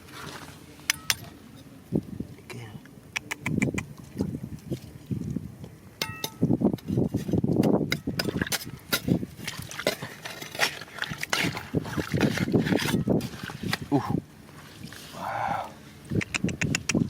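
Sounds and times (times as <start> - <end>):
stones and gravel clinking: 6.0 - 13.8
splashing water: 8.2 - 17.0.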